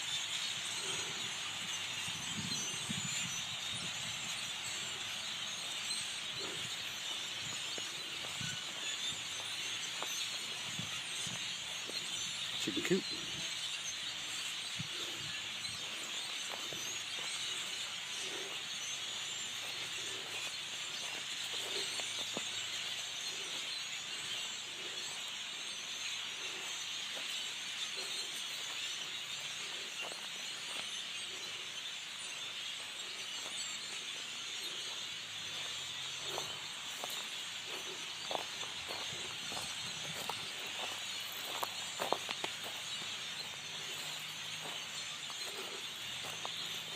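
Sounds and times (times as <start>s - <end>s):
many birds chattering: 0.0s - 46.9s.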